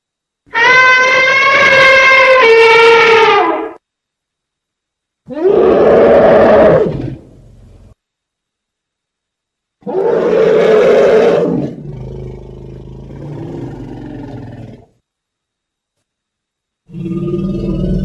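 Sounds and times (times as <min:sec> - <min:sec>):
low elephant call: 0:00.5 - 0:03.8
elephant roaring: 0:00.6 - 0:03.6, 0:05.3 - 0:07.9, 0:09.8 - 0:14.9, 0:16.9 - 0:18.0.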